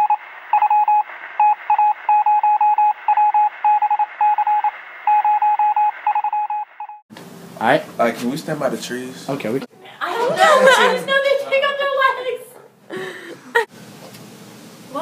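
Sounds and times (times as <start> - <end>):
electronic beeps: 0.0 - 7.0.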